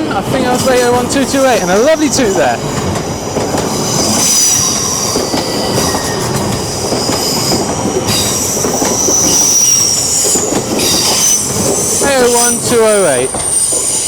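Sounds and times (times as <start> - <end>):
train wheels rumbling on rails: 0.0 - 14.0
wheel squeal: 3.4 - 14.0.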